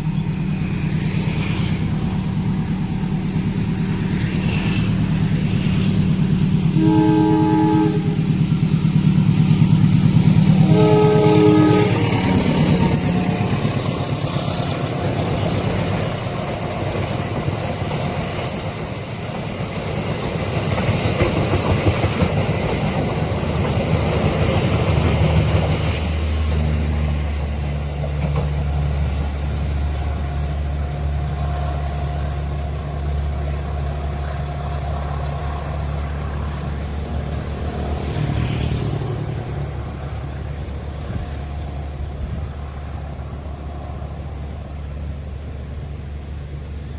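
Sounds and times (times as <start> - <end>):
locomotive engine: 0.0 - 46.9
train wheels rushing on rails: 0.0 - 46.9
train horn blasts: 6.7 - 8.4, 10.6 - 13.3.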